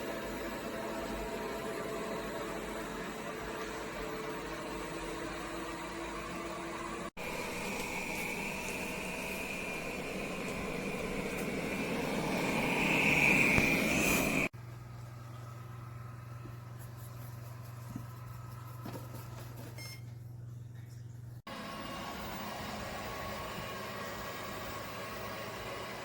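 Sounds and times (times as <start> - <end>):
robot vacuum humming: 0.0 - 14.5, 21.5 - 26.0
high whine: 2.7 - 14.5.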